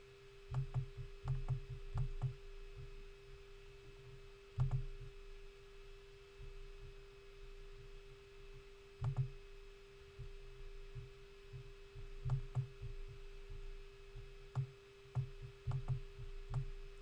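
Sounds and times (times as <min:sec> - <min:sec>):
faint electrical hum: 0:00.0 - 0:17.0
computer mouse clicking: 0:04.6 - 0:04.8, 0:09.0 - 0:09.3, 0:14.5 - 0:16.7.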